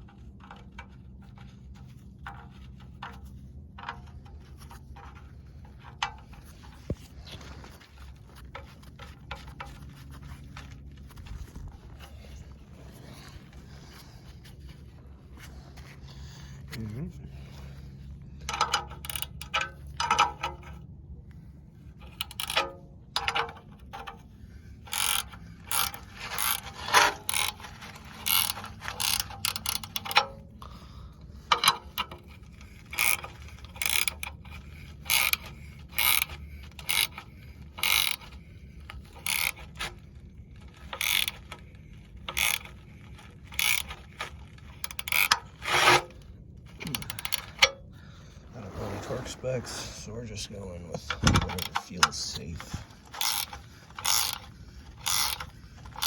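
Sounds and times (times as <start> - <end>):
socket ratchet clicking: 22.0 - 24.2, 24.9 - 30.5, 31.5 - 38.4, 39.0 - 39.8, 40.9 - 41.5, 42.2 - 42.8, 43.5 - 46.0, 46.8 - 47.7, 53.0 - 56.0.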